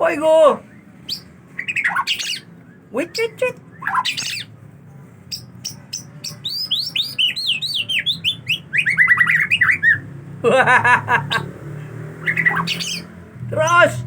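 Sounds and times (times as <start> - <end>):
songbird singing whistled notes: 0.6 - 4.6, 5.3 - 10.1, 12.2 - 14.0.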